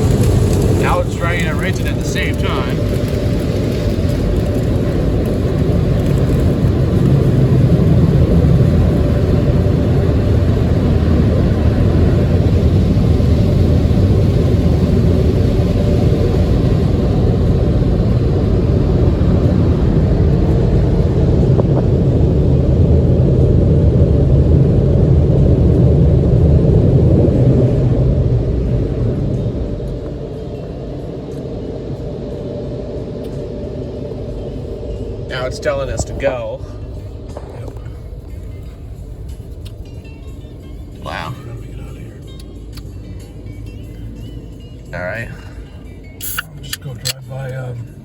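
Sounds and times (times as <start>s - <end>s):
car wash dryer blowers: 0.0s - 48.0s.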